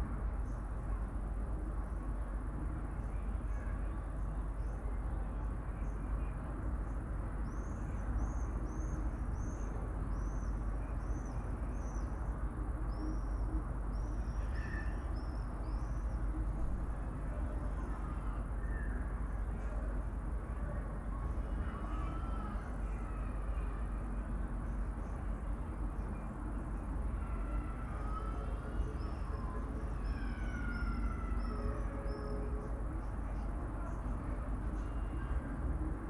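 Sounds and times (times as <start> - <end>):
low background rumble: 0.0 - 36.0.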